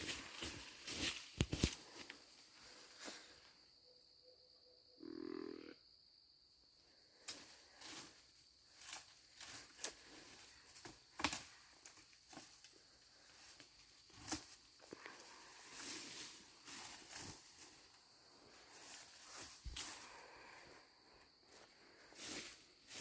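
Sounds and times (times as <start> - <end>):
rustles and clicks of gear: 0.0 - 2.2
faint high insect hum: 0.0 - 23.0.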